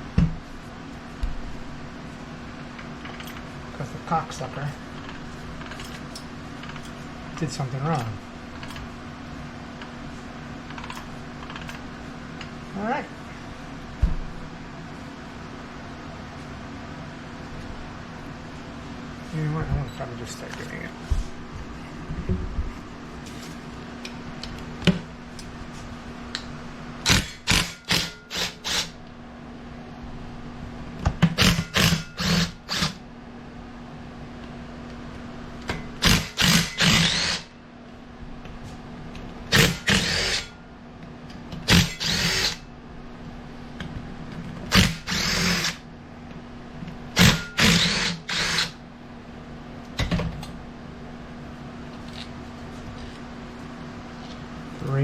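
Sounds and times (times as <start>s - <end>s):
steady low hum: 0.0s - 55.0s
power drill bursts: 27.1s - 29.0s, 31.4s - 33.0s, 36.0s - 37.5s, 39.5s - 40.5s, 41.7s - 42.6s, 44.7s - 45.8s, 47.2s - 48.8s.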